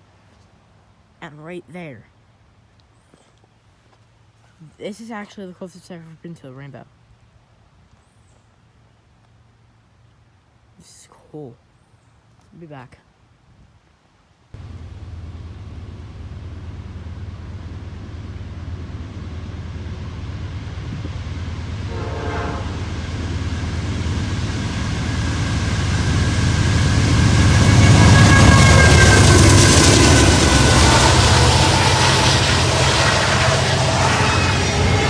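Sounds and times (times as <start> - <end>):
higher steady tones: 14.6 - 35.0
locomotive engine drone: 14.6 - 35.0.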